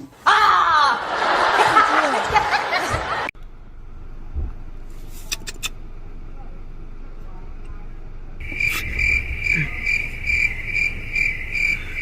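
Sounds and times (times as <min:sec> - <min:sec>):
people laughing and shrieking: 0:00.3 - 0:03.3.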